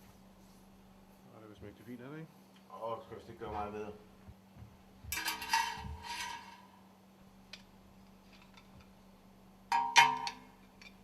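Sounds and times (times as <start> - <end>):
faint steady hum: 0.0 - 11.0
metal parts clinking: 5.2 - 6.6.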